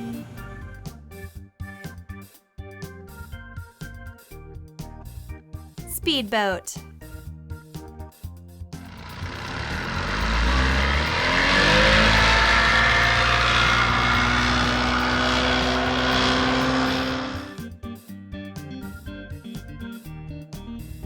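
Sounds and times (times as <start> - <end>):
speedboat engine running: 8.8 - 17.6.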